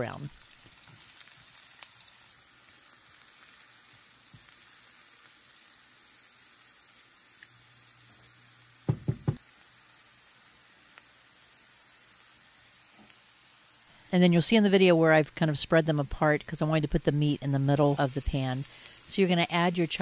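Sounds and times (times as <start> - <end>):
vegetables sizzling in a frying pan: 0.0 - 20.0
sharp knocks: 8.9 - 9.4.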